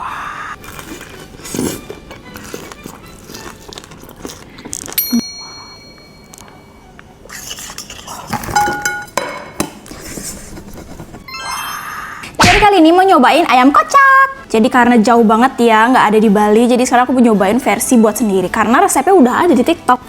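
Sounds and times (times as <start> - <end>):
tableware clinking: 5.0 - 9.8.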